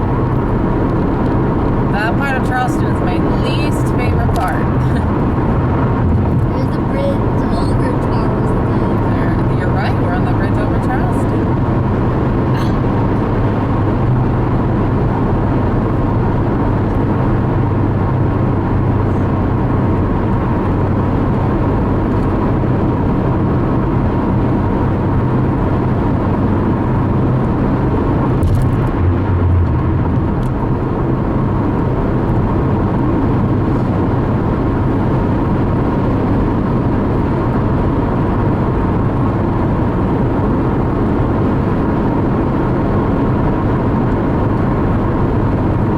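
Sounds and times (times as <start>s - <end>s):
car cruising heard from cabin: 0.0s - 45.9s.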